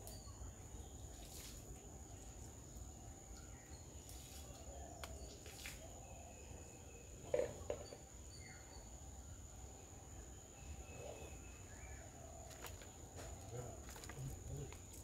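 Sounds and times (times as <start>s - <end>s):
birds chirping and calling: 10.5s - 15.0s.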